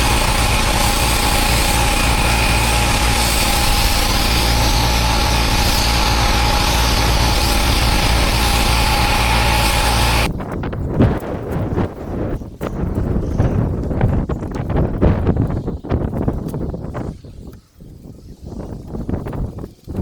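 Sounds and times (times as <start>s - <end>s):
pressure washer running: 0.0s - 10.3s.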